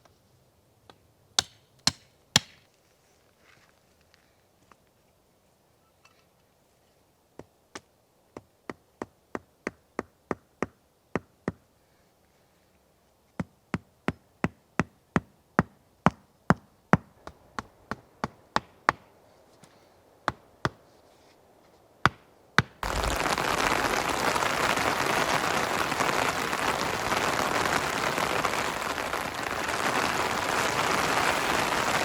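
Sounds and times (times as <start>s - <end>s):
hand tool striking blows: 1.4s - 2.6s.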